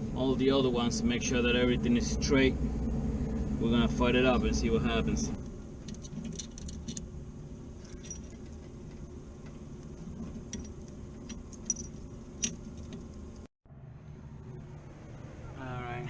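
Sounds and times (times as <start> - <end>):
steady low hum: 0.0 - 16.0
metallic clinks of tools: 10.5 - 12.8.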